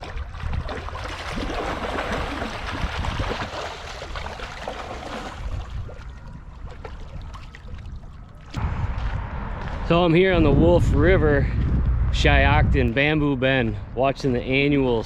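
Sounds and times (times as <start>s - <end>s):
wind rumble on microphone: 0.0s - 3.6s, 4.9s - 15.0s
water rushing and splashing: 0.0s - 8.6s.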